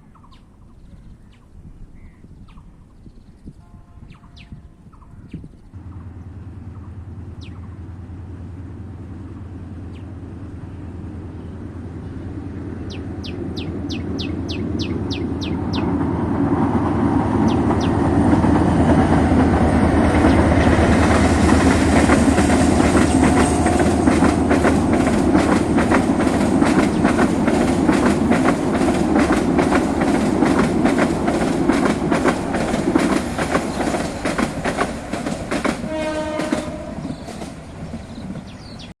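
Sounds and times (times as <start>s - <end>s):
train horn: 3.6s - 5.3s, 20.3s - 25.5s, 35.6s - 37.5s
train wheels clattering: 12.9s - 38.9s.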